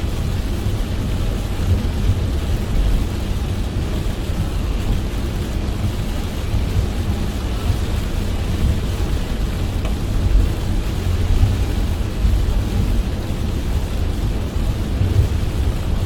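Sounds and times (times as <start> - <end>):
heavy rain on a car: 0.0 - 16.0
tyres rumbling on road: 0.0 - 16.0.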